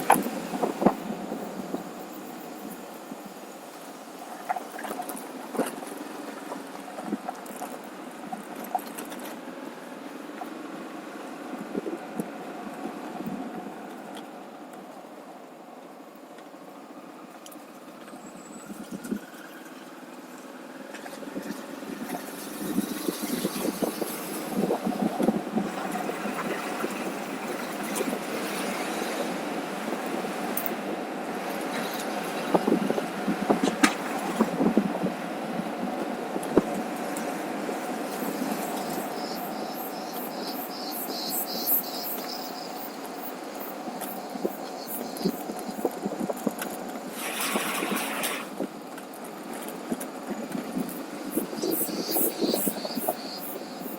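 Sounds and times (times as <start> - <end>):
wind noise: 0.0 - 9.0, 21.0 - 53.9.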